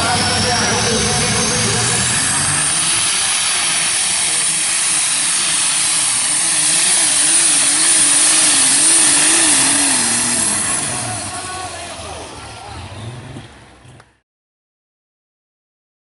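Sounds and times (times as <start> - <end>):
high turbo whistle: 0.0 - 11.8
pulling tractor engine roaring: 0.0 - 14.2.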